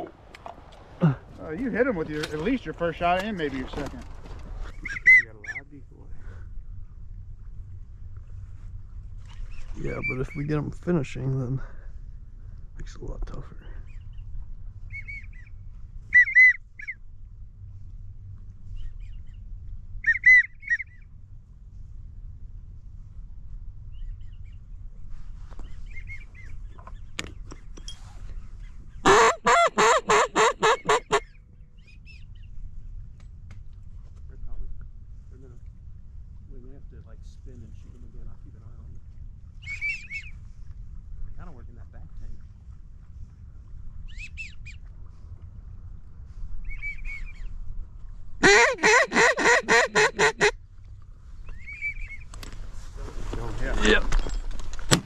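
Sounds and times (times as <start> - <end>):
faint duck whistles: 4.7 - 5.6, 16.1 - 17.0, 20.0 - 21.0, 39.6 - 40.4, 46.6 - 47.4, 51.5 - 52.2
duck call quacks: 29.0 - 31.2, 48.4 - 50.6.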